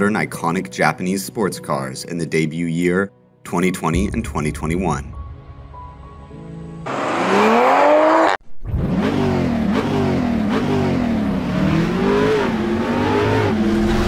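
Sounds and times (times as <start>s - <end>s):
sports car engine revving: 6.9s - 14.0s.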